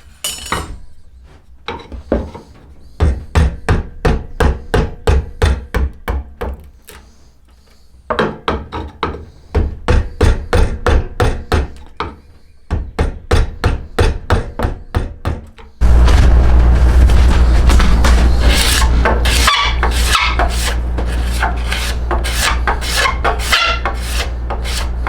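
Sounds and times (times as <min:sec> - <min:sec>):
hand tool striking wood: 0:17.7 - 0:25.0.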